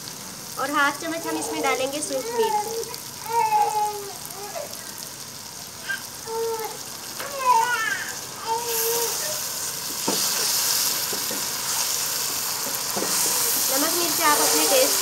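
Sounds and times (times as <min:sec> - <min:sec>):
food sizzling in a pot: 0:00.0 - 0:15.0
stirring knocks: 0:09.9 - 0:15.0.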